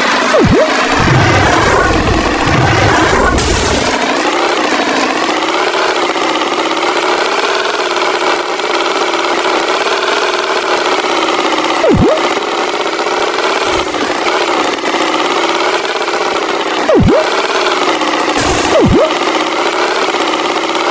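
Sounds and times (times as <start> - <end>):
tractor engine running: 0.0 - 20.9
swooping sound: 0.3 - 3.4, 11.8 - 12.3, 18.6 - 19.2.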